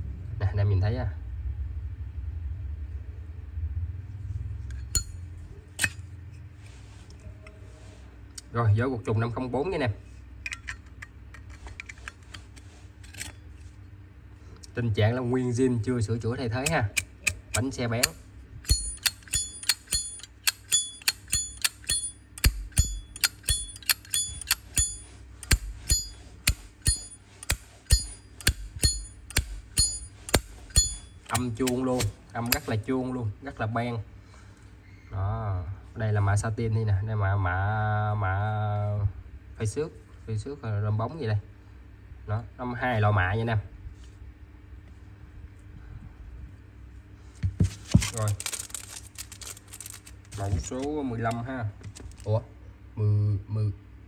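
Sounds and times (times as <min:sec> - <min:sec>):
low steady rumble: 0:00.0 - 0:54.0
high metallic ringing: 0:04.7 - 0:06.1, 0:16.7 - 0:32.8
metallic lighter clicks: 0:16.6 - 0:31.8.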